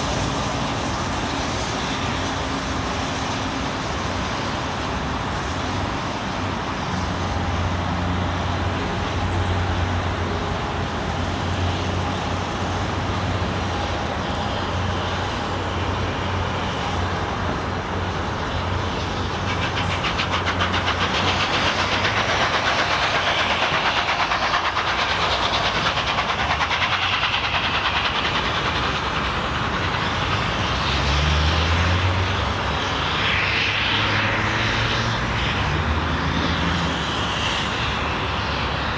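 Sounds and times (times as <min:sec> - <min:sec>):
train low hum: 0:00.0 - 0:38.9
train wheels clattering over rail joints: 0:14.0 - 0:30.6.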